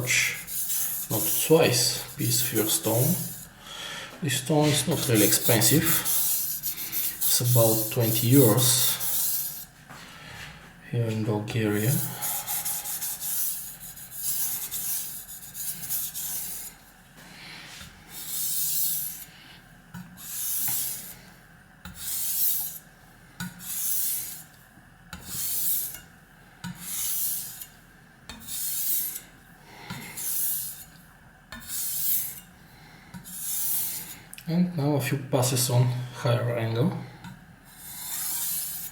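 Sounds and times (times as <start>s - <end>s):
knife rasping on a wet whetstone: 0.1s - 3.5s, 4.6s - 9.7s, 12.0s - 16.8s, 18.1s - 19.3s, 20.2s - 21.2s, 21.8s - 22.8s, 23.6s - 24.5s, 25.2s - 26.0s, 26.8s - 27.7s, 28.3s - 29.3s, 30.1s - 32.5s, 33.2s - 34.2s, 37.7s - 38.9s.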